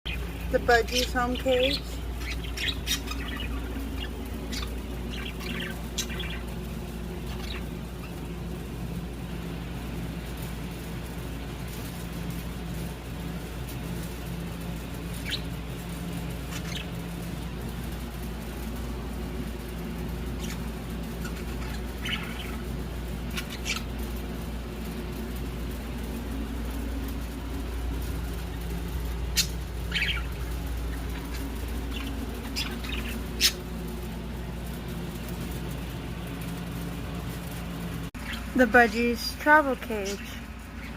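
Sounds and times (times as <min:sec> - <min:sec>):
budgies chirping and squawking: 0:00.1 - 0:08.3, 0:15.0 - 0:15.6, 0:16.4 - 0:17.1, 0:20.2 - 0:24.2, 0:29.3 - 0:33.7
low hum: 0:00.1 - 0:40.9.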